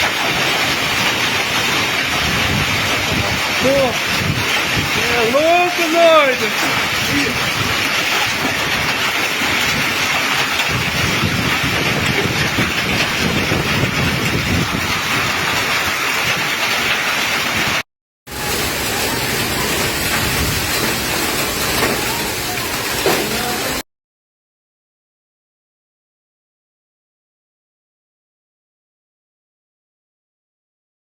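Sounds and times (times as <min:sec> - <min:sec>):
heavy rain pouring: 0:00.0 - 0:23.9.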